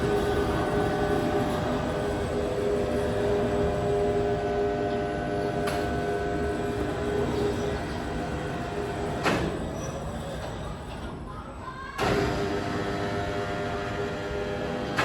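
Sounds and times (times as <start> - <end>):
heavy sawmill machinery rumbling: 0.0 - 9.8.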